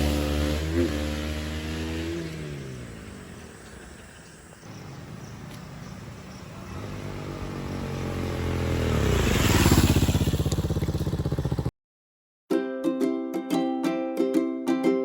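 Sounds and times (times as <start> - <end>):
motorcycle engine passing: 0.0 - 11.7.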